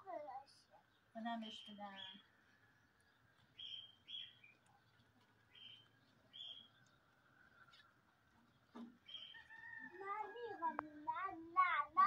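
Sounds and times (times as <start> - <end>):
small bird chirping: 0.6 - 9.8.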